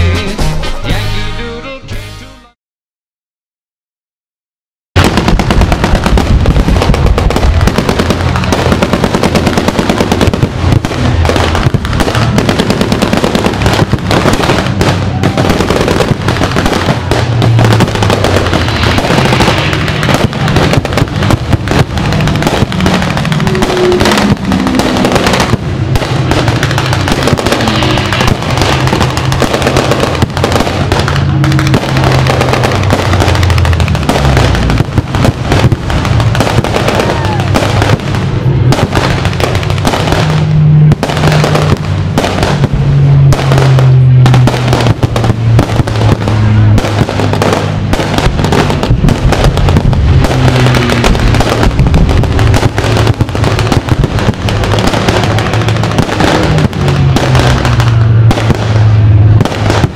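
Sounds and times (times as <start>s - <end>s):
loud music: 0.0s - 2.6s, 17.6s - 30.9s
fireworks bursting and crackling: 5.0s - 59.9s.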